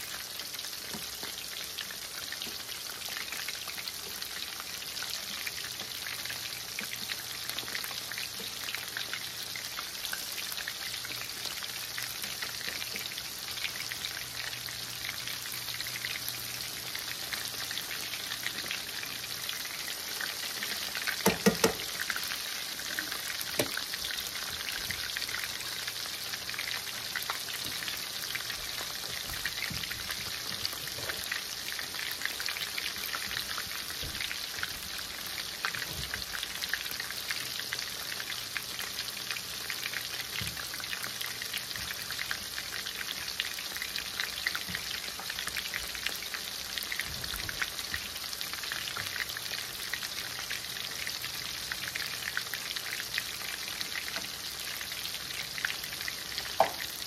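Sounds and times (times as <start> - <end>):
chicken frying in hot oil: 0.0 - 57.0
knocks: 21.2 - 21.8.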